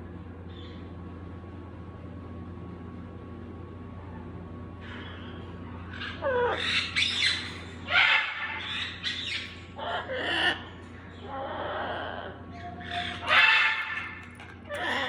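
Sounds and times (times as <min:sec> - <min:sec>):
steady low hum: 0:00.0 - 0:15.0
baby parrots squawking: 0:06.1 - 0:15.0.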